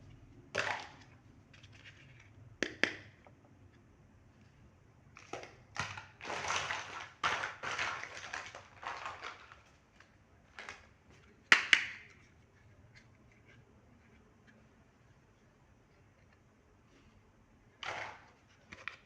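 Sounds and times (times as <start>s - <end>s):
packaging rustling and crinkling: 5.2s - 11.4s.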